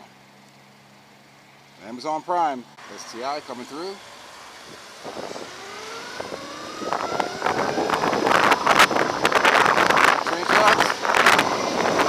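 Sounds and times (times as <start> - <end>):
electric motorbike motor whine: 2.8 - 12.0
wind buffeting microphone: 4.6 - 12.0.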